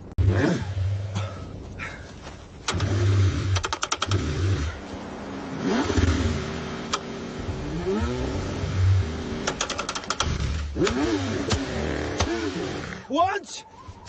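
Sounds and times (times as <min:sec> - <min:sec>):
car engine cranking: 0:02.6 - 0:04.8, 0:05.6 - 0:13.0
quick run of clicks: 0:03.6 - 0:04.2, 0:09.4 - 0:12.3.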